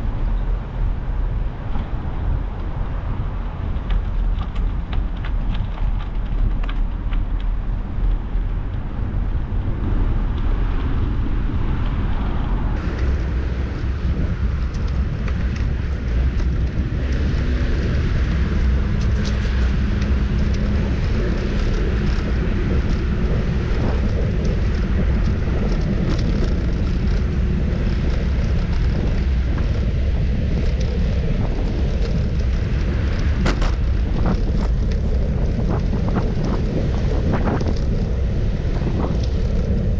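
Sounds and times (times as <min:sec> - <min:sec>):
wind buffeting microphone: 0:00.0 - 0:39.9
road traffic noise: 0:11.9 - 0:39.9.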